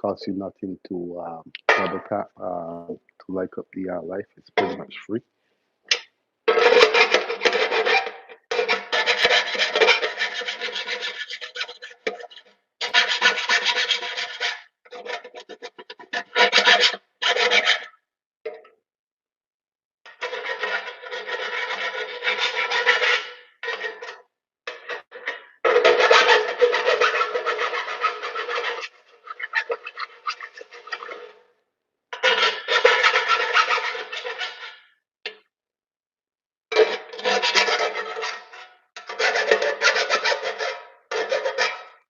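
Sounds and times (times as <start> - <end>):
file rasping on metal: 6.5 - 17.9, 20.1 - 31.4, 32.2 - 34.9, 36.8 - 42.0.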